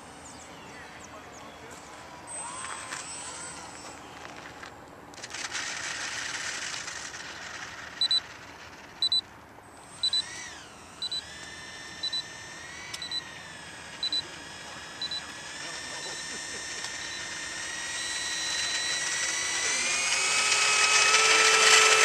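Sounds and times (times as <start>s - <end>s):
electric ducted fan whine: 0.0s - 22.0s
electronic double beep: 8.0s - 8.2s, 9.0s - 9.2s, 10.0s - 10.3s, 11.0s - 11.3s, 14.0s - 14.3s, 15.0s - 15.2s.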